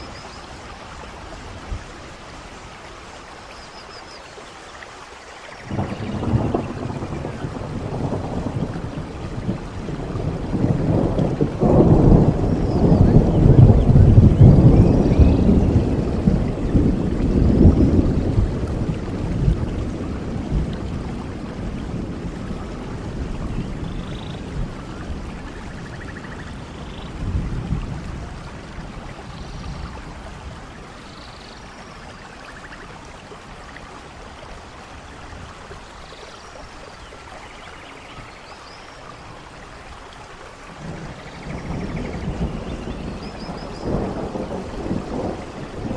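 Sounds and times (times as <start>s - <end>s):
steady rainfall: 0.0s - 45.9s
thunder rolling: 5.6s - 30.2s, 40.8s - 45.9s.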